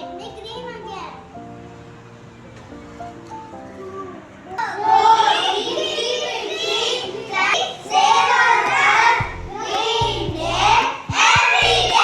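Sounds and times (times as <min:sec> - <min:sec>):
children singing: 0:04.6 - 0:12.0
background music: 0:08.2 - 0:12.0
low beat: 0:08.7 - 0:12.0.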